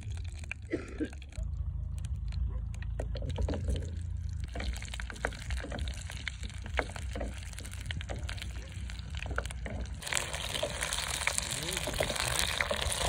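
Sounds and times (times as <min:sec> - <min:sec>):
wooden spoon stirring: 0:02.9 - 0:13.0
onions sizzling in oil: 0:04.8 - 0:13.0.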